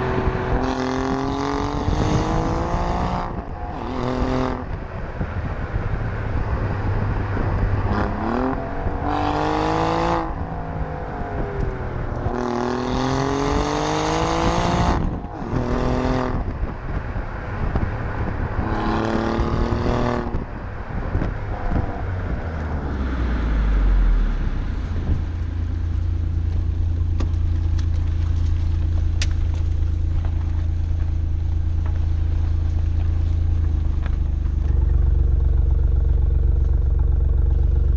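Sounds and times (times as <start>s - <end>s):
car engine revving: 0.0s - 37.9s
car engine idling: 20.4s - 37.9s.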